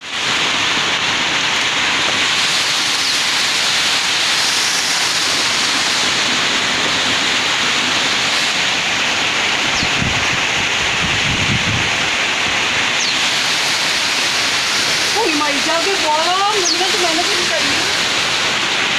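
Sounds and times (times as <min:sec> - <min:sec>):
heavy rain pouring: 0:00.0 - 0:18.9
wind buffeting microphone: 0:09.7 - 0:12.1.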